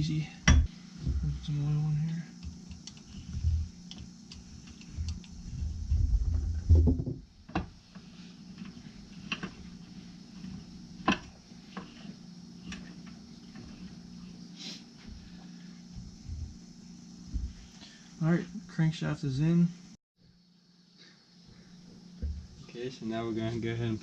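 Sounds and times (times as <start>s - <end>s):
steady low hum: 0.0s - 24.0s
low thumps and knocks: 5.0s - 7.8s, 15.9s - 16.6s, 17.2s - 17.7s, 22.2s - 22.6s.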